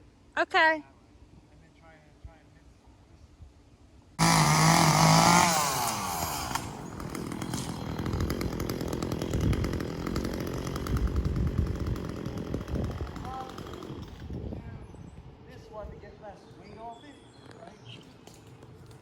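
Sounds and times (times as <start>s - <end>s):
chainsaw running: 4.2s - 14.6s.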